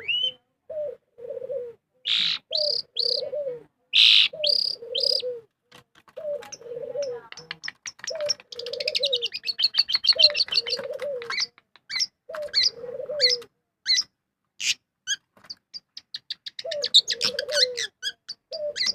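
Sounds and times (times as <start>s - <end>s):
low cooing: 0.0s - 5.5s, 6.2s - 7.5s, 8.1s - 11.5s, 12.3s - 13.5s, 16.6s - 18.9s
birds chirping and trilling: 2.1s - 5.4s, 6.2s - 18.9s.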